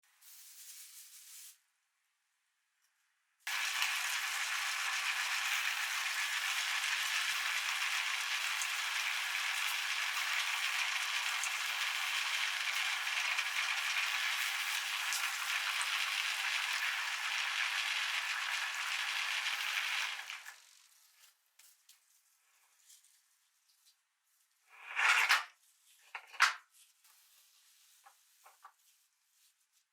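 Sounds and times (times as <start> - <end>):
meat grinder rattling: 11.8 - 20.6.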